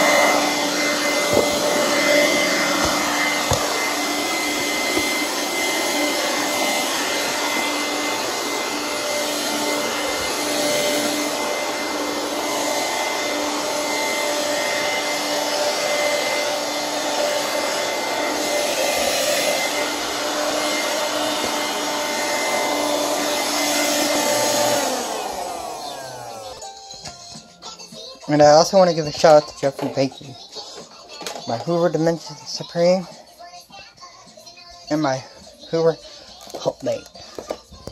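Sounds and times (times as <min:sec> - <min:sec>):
vacuum motor winding down: 0:00.0 - 0:26.6
vacuum cleaner running: 0:00.0 - 0:26.8.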